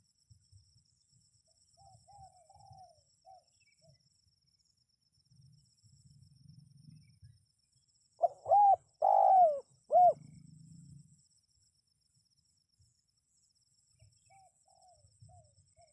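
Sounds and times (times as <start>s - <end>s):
dove cooing: 1.8s - 3.5s, 8.2s - 10.6s.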